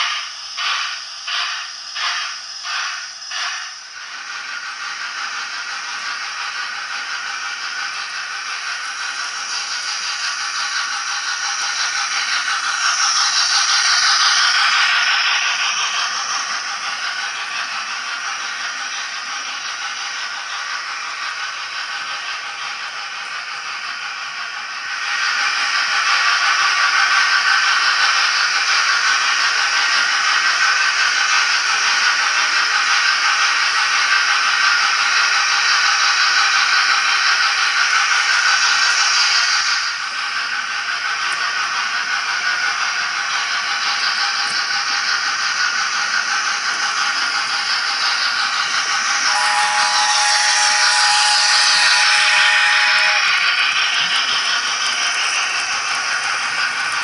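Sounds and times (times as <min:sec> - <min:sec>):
steam hiss: 0:00.0 - 0:57.0
wheels rattling on model track: 0:00.0 - 0:57.0.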